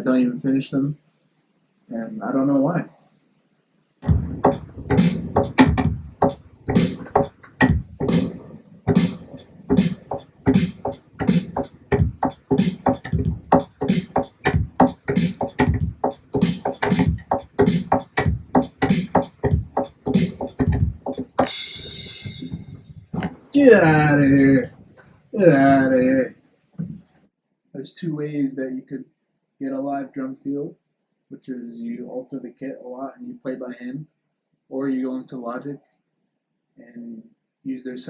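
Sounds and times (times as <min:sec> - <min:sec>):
programmed drum beat: 0:04.0 - 0:26.3
ringing sound: 0:21.4 - 0:22.9.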